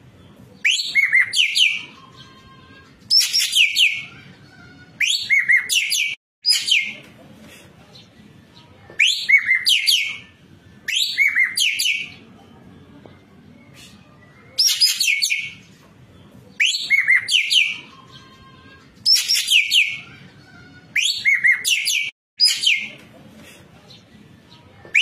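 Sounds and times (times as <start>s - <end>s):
songbird singing whistled phrases: 0.6s - 2.4s, 3.1s - 4.2s, 5.0s - 7.0s, 9.0s - 12.2s, 13.6s - 15.6s, 16.6s - 18.3s, 19.1s - 20.1s, 20.9s - 23.0s.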